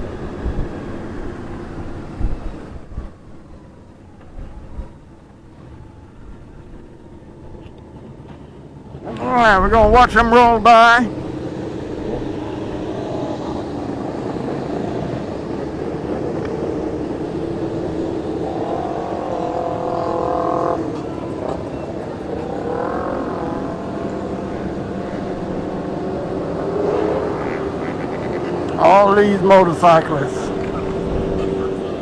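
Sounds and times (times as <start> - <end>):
motorcycles rumbling past: 0.0 - 32.0
passing motorcycle engine pitch bending: 9.0 - 32.0.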